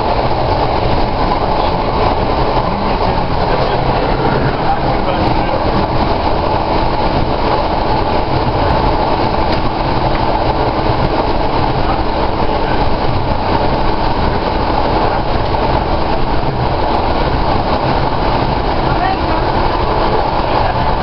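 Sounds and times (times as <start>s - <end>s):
diesel engine drone: 0.0s - 21.0s
wheel-on-rail rumble: 0.0s - 21.0s.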